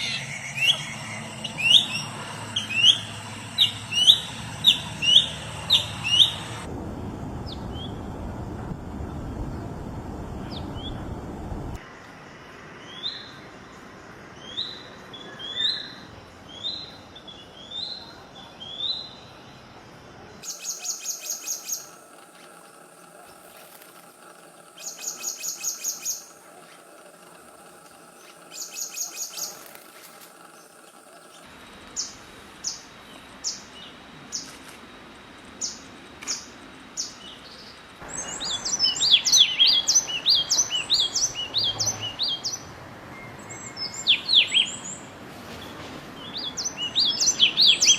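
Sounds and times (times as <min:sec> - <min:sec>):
dense busy birdsong: 0:00.0 - 0:06.7, 0:10.5 - 0:23.2, 0:24.6 - 0:34.6, 0:35.5 - 0:47.9
rising bird chirp: 0:00.0 - 0:06.7, 0:35.6 - 0:45.1.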